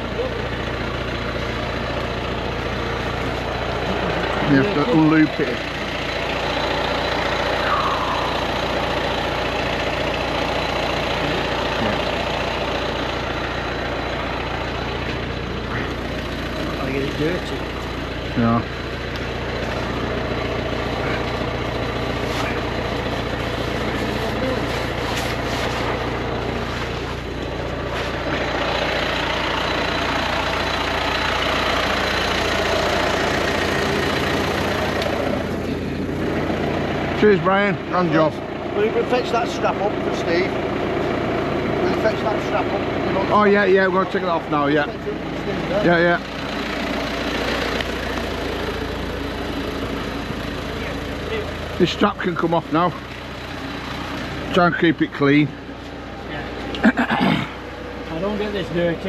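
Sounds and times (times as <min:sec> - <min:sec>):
large vehicle engine idling: 0:00.0 - 0:59.0.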